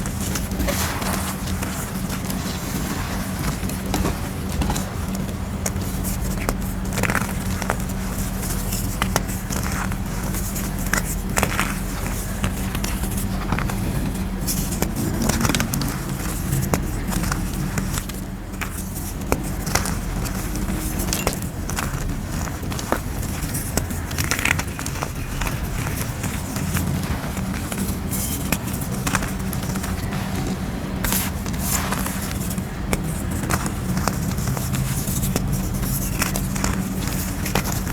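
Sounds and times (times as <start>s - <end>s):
chalk crushing and crunching: 0.0s - 37.9s
steady low hum: 0.0s - 37.9s.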